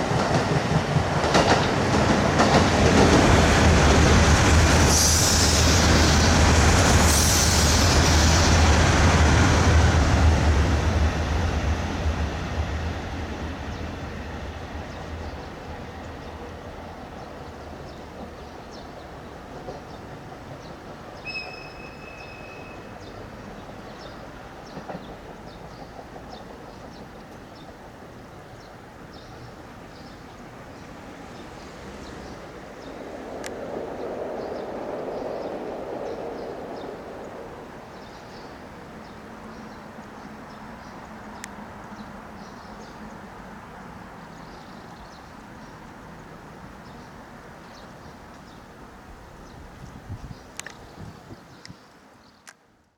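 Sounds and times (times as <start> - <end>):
diesel railcar rumbling: 0.0 - 50.7
bird chirps: 21.1 - 23.2.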